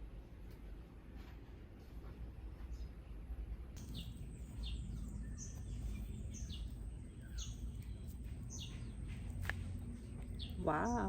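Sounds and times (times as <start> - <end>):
low background rumble: 3.5 - 11.0
bird chirping: 3.8 - 11.0.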